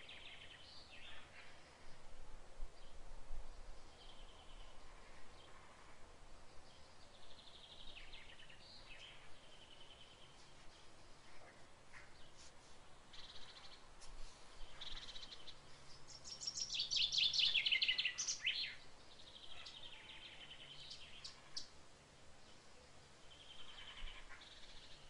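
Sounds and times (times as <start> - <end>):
birds chirping and singing: 13.1 - 21.7.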